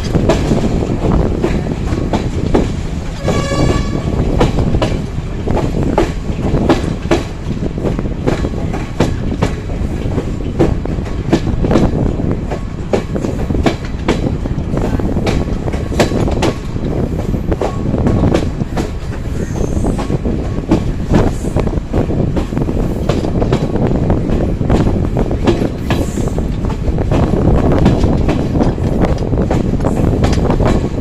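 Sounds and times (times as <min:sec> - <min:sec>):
train rumble: 0:00.0 - 0:31.0
train wheels clacking on rails: 0:00.0 - 0:31.0
train horn blast: 0:03.2 - 0:04.3.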